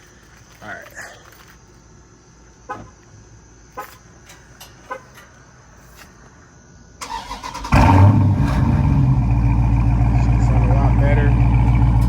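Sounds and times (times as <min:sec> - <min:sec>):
engine starter cranking: 0:07.0 - 0:08.7, 0:11.4 - 0:12.0
car engine firing: 0:07.0 - 0:12.0.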